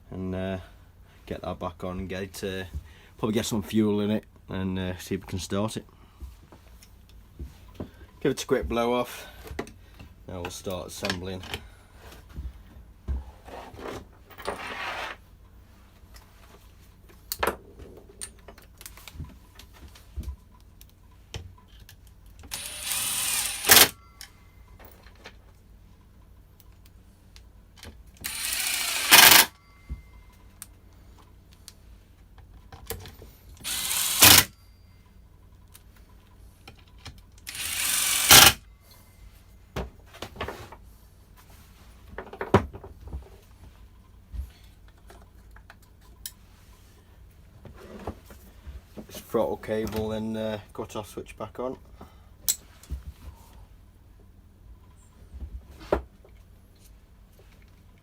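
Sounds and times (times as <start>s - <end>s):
metal parts clicking and knocking: 21.6s - 25.4s, 27.8s - 29.6s, 32.7s - 34.6s, 36.6s - 38.6s.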